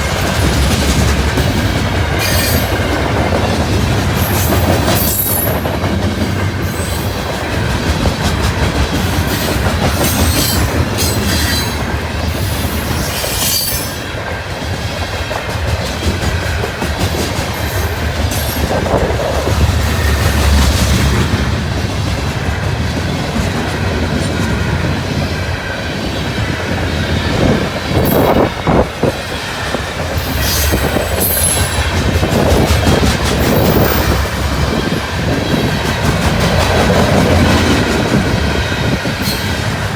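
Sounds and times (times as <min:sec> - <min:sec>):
wind buffeting microphone: 0:00.0 - 0:13.0, 0:14.1 - 0:39.9
train wheels rumbling on rail: 0:00.0 - 0:39.9
high wheel squeals: 0:12.4 - 0:14.0, 0:30.2 - 0:31.9, 0:33.4 - 0:34.6.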